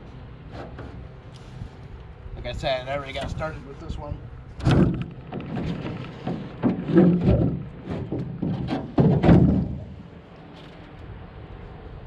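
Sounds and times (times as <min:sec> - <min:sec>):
knocks against aluminum boat hull: 0:04.6 - 0:10.0.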